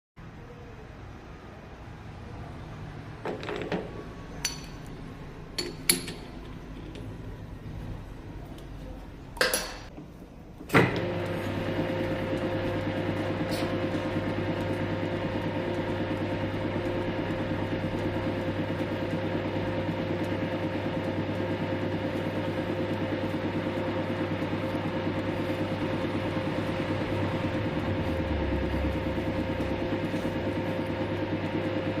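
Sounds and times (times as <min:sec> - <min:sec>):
lathe running with humming whine: 0:10.8 - 0:32.0.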